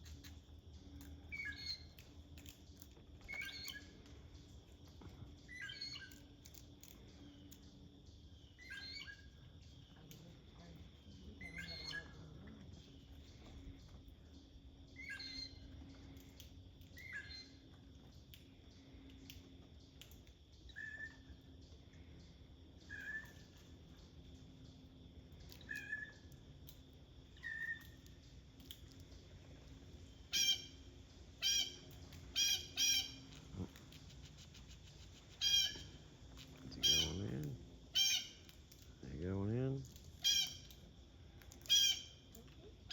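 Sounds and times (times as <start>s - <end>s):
short bird calls: 30.3s - 30.8s, 31.4s - 36.0s, 36.6s - 38.5s, 40.2s - 40.7s
loud harsh bird squawks: 30.4s - 30.8s, 31.4s - 33.7s, 35.3s - 36.0s, 36.8s - 37.3s, 37.9s - 38.4s, 40.2s - 40.7s, 41.7s - 42.2s.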